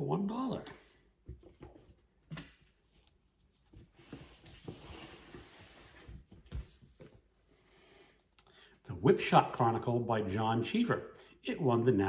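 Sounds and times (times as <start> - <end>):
paper and book covers rustling: 2.8 - 7.4.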